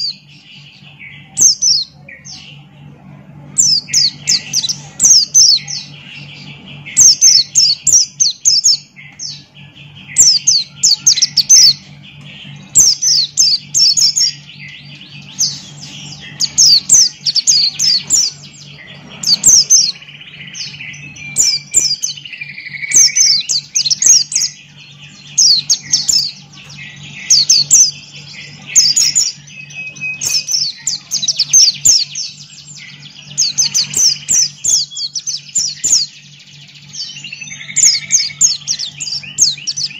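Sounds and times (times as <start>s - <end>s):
bird singing high falling notes: 0.0s - 39.9s
steady low hum: 0.0s - 39.9s.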